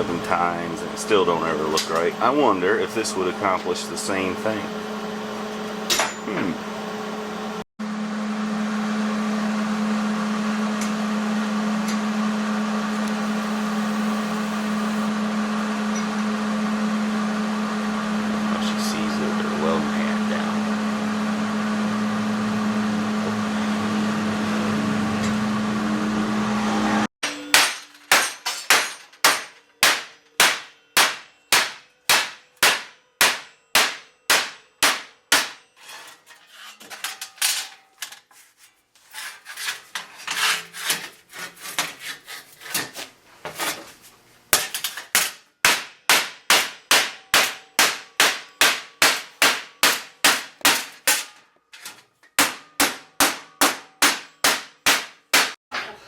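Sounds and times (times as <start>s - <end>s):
machine hum: 0.0s - 27.1s.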